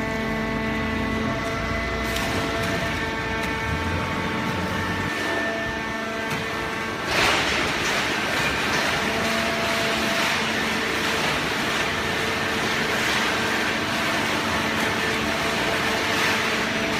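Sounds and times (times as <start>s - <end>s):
baler machine noise: 0.0s - 16.9s
hydraulic whine: 0.0s - 16.9s.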